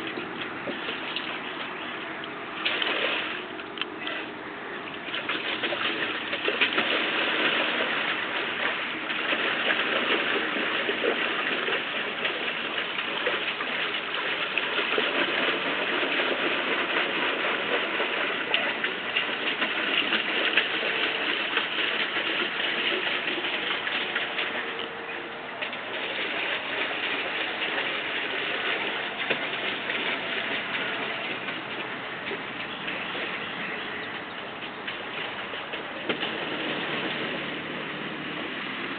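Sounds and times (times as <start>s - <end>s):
water splashing and churning: 0.0s - 38.9s.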